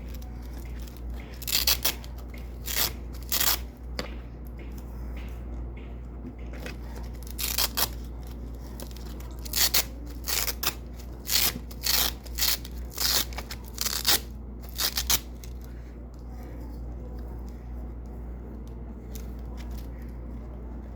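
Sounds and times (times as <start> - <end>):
velcro tape ripping: 1.4 - 3.7, 7.2 - 15.5.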